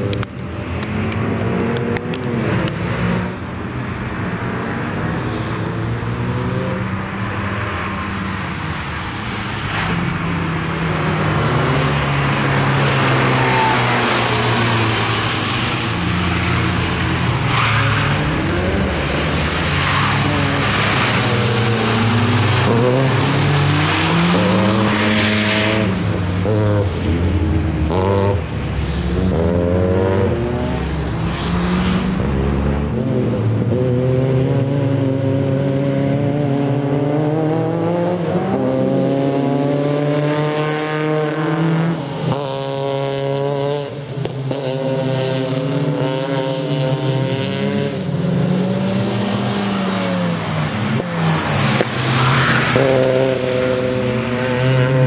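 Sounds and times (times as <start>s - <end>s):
tyre noise on wet track: 7.2s - 29.4s, 40.2s - 55.0s
rally car engine revving: 9.7s - 28.5s, 29.1s - 55.0s.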